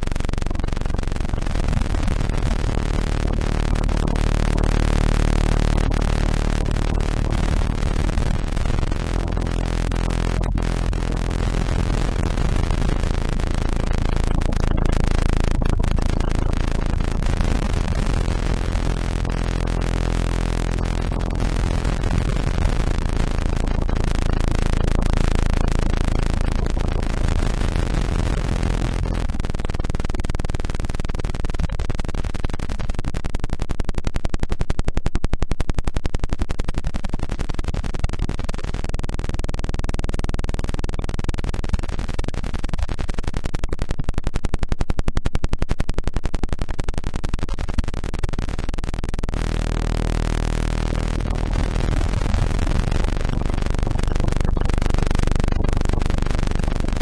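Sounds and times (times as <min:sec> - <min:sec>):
low steady tones: 0:00.0 - 0:31.0, 0:49.3 - 0:57.0
rapidly pulsing electronic buzz: 0:00.0 - 0:57.0.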